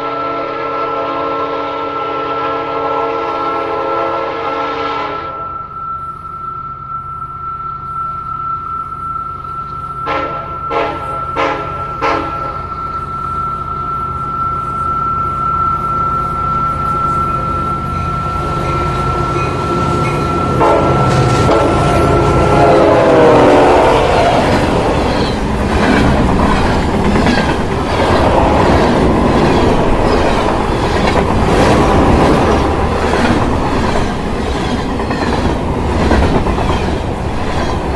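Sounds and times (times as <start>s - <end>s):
train horn blasts: 0.0s - 5.8s, 10.0s - 14.1s, 15.8s - 25.1s
train wheels clattering over rail joints: 24.2s - 37.9s.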